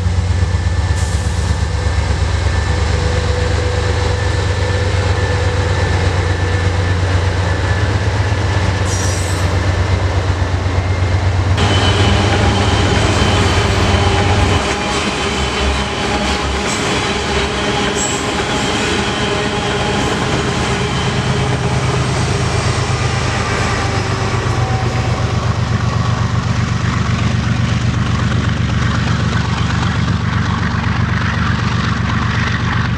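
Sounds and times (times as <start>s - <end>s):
freight train wheels rumbling on rail: 0.0s - 32.9s
wheels clacking over rail joints: 11.2s - 32.9s.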